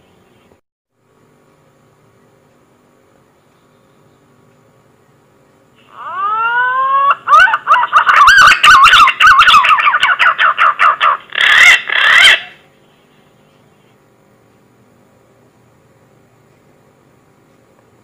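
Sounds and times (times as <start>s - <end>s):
warbling whistled bird call: 5.8s - 12.6s.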